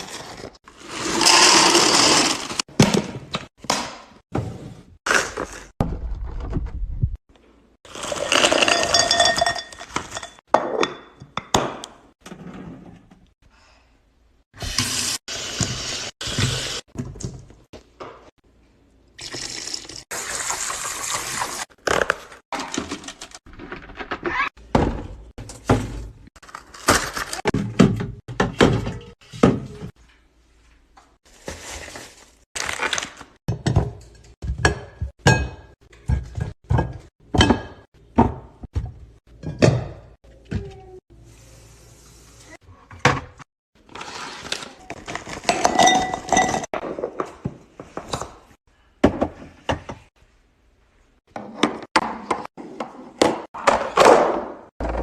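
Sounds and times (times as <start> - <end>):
pouring into containers: 7.9 - 10.2, 19.2 - 23.4.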